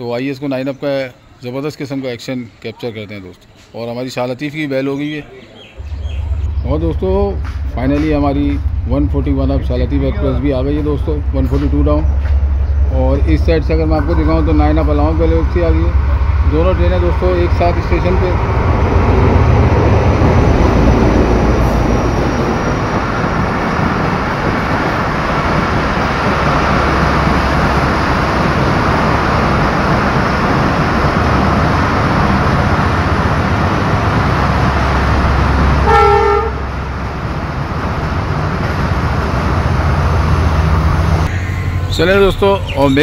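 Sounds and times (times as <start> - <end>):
train coaches rumbling past: 4.8 - 43.0
locomotive horn toot: 35.8 - 36.8, 41.3 - 42.3.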